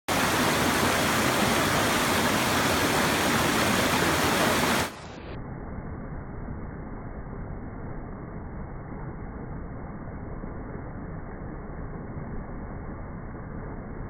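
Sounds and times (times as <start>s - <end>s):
water rushing over rocks: 0.1s - 5.2s.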